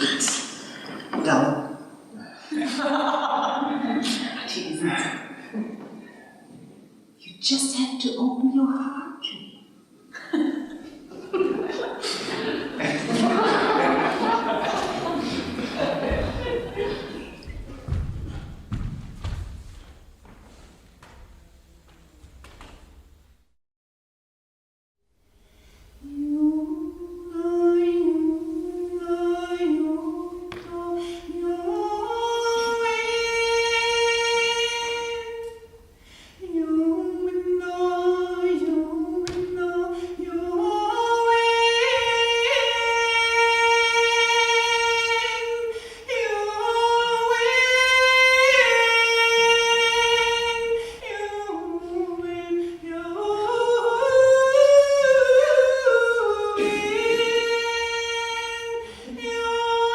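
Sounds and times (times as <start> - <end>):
woman singing wordlessly: 26.0 - 35.7, 36.4 - 59.9.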